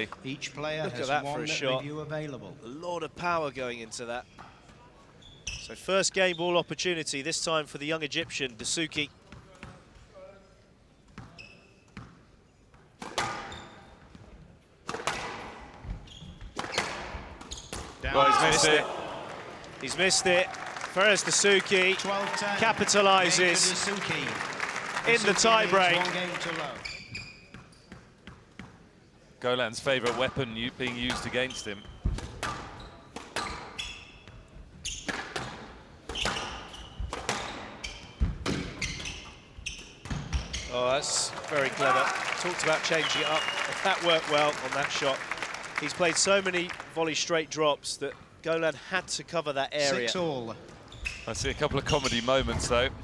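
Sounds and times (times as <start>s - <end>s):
shoes squeaking on court: 4.3s - 5.8s, 11.0s - 14.3s, 15.1s - 18.8s, 19.8s - 28.7s, 31.1s - 41.0s, 49.9s - 52.9s
squash ball hits: 35.0s - 38.8s.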